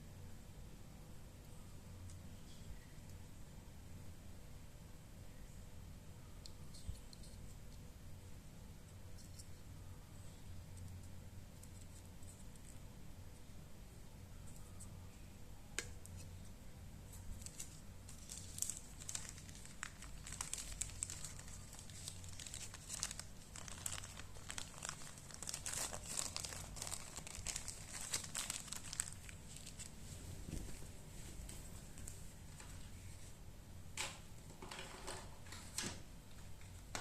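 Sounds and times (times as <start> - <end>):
packing material crinkling: 17.1 - 33.0.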